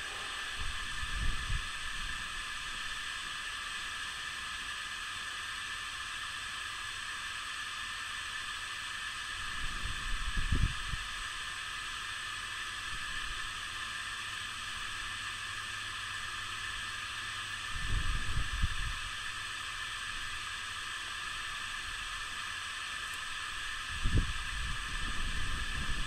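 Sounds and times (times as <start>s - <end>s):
snowstorm wind hiss: 0.0s - 4.0s, 9.3s - 11.5s, 17.7s - 19.2s, 23.3s - 26.0s.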